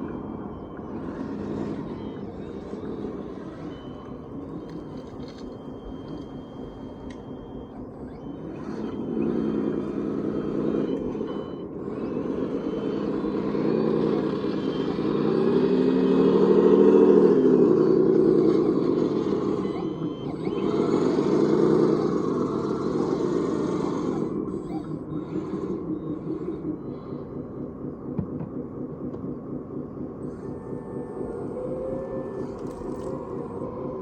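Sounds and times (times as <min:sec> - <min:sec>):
model machine motor hum: 0:00.0 - 0:28.2, 0:30.0 - 0:34.0.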